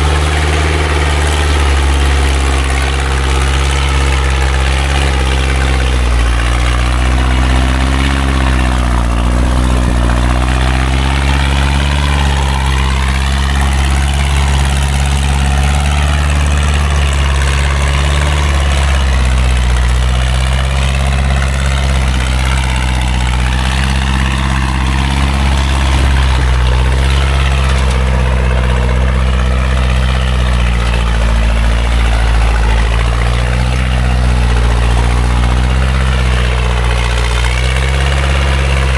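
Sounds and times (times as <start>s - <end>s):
truck engine droning: 0.0s - 38.9s.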